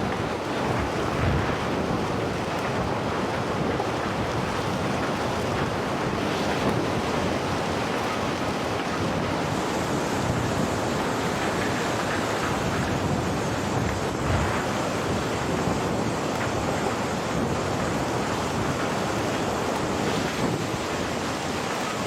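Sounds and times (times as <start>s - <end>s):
fast-flowing water rushing: 0.0s - 22.0s.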